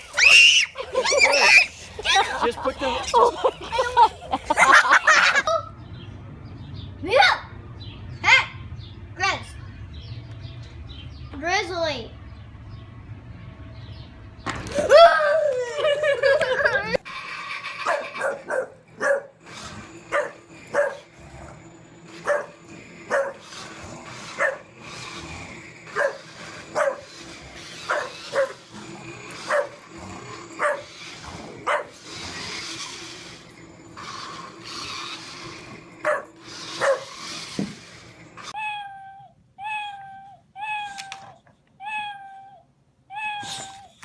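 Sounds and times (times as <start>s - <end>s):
dog barking: 17.8s - 19.3s, 20.1s - 21.0s, 22.2s - 23.4s, 24.4s - 24.6s, 26.0s - 26.2s, 26.8s - 27.1s, 27.9s - 28.6s, 29.5s - 29.8s, 31.7s - 32.0s, 36.0s - 37.1s.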